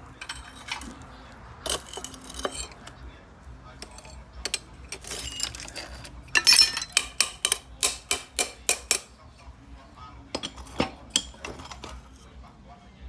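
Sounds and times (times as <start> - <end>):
hand tool striking metal: 0.2 - 1.0, 1.6 - 2.9, 3.8 - 9.1.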